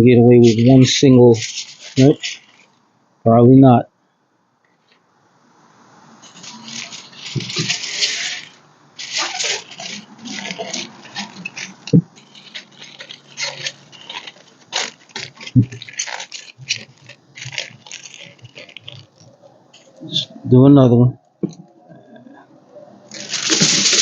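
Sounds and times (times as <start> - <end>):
aluminium foil crinkling: 0.4 - 2.8, 6.2 - 20.0, 23.1 - 24.0.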